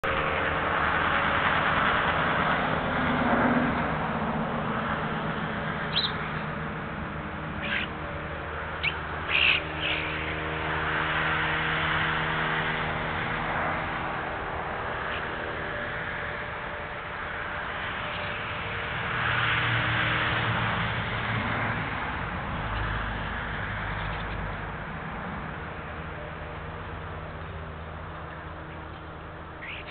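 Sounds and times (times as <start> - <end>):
steady outdoor hiss: 0.0 - 29.9
short sharp bird calls: 5.9 - 6.2, 7.6 - 7.9, 8.8 - 10.3, 29.6 - 29.9.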